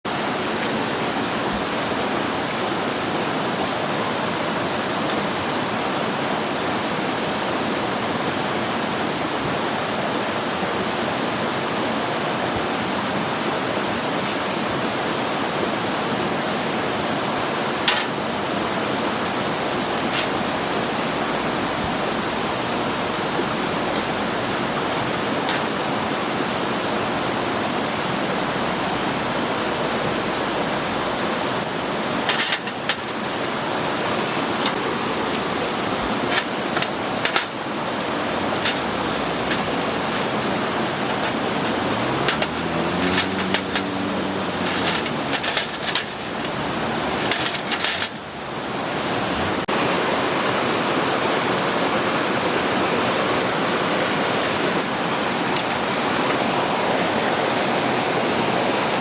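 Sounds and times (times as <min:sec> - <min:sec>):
steady rushing noise: 0:17.4 - 0:50.6.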